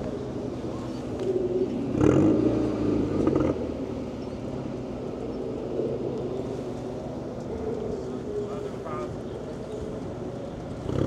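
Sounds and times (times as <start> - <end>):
racing car engines revving: 0.0 - 8.6.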